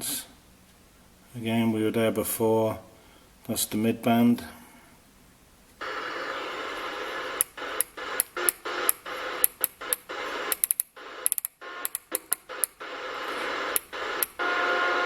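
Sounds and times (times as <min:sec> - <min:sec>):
radio speaker hissing: 0:05.8 - 0:15.0
sharp radio clicks: 0:05.8 - 0:15.0.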